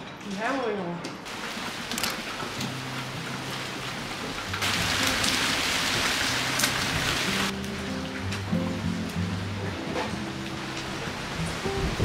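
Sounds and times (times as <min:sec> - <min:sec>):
wind: 0:01.2 - 0:12.0
rain spattering on plastic lid: 0:01.3 - 0:09.3.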